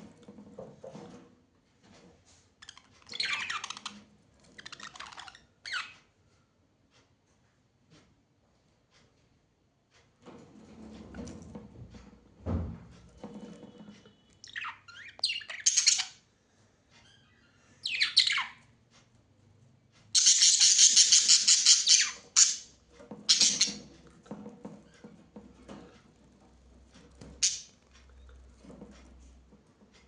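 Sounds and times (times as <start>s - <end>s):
birds squawking harshly: 20.2s - 22.7s, 23.3s - 23.8s.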